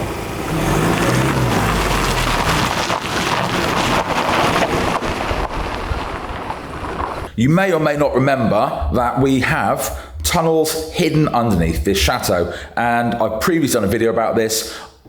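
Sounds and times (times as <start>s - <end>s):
van engine running: 0.0s - 7.3s
road and wind noise: 0.0s - 7.4s.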